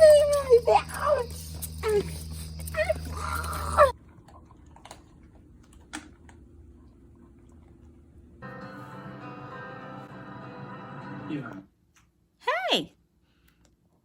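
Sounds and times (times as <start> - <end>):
puppy whining: 0.0 - 4.0.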